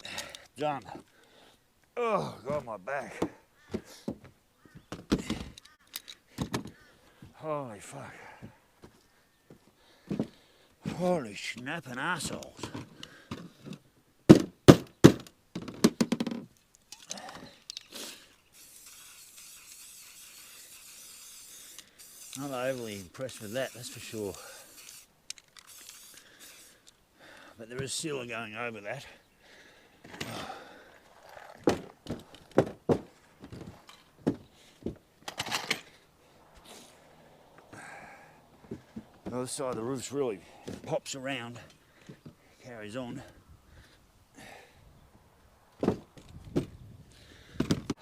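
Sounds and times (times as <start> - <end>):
clatter of sharp knocks: 14.3 - 16.5
sheet-metal roof thunks and pops: 14.3 - 16.5
faint steady hiss: 16.5 - 32.2.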